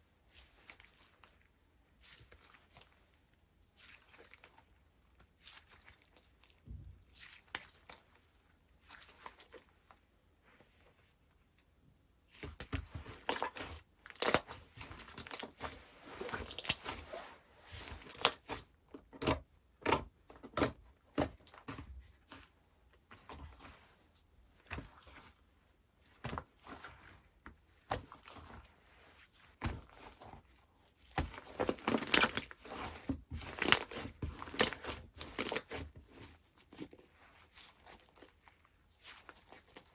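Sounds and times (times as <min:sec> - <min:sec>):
slime crackling and popping: 0:13.2 - 0:15.6, 0:18.0 - 0:18.5.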